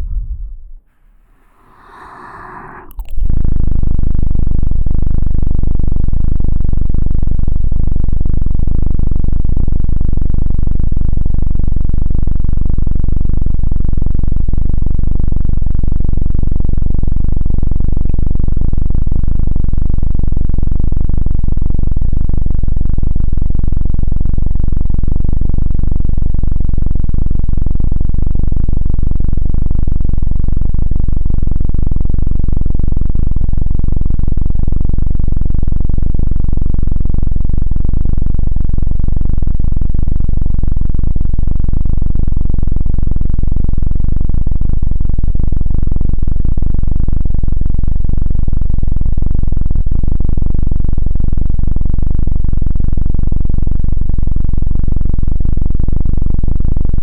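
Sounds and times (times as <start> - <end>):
distorted pulsing drone: 0.0 - 3.3.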